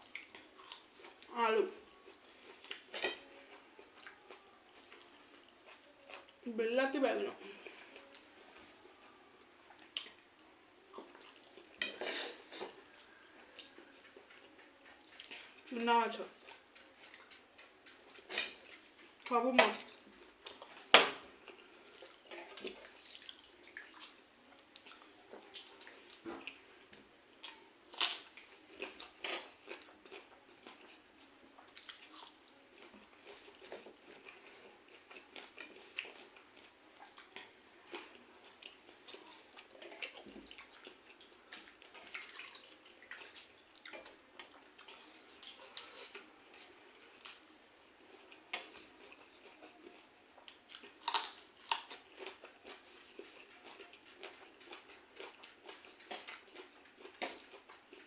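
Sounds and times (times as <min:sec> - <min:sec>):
wet squishes of watery rice: 0:21.9 - 0:26.6, 0:39.8 - 0:47.5
chewing and biting: 0:27.4 - 0:58.0.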